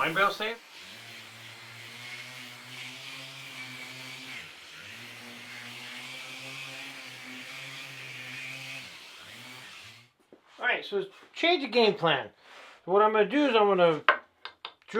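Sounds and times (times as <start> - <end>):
electric power tool whirring: 0.0 - 10.2.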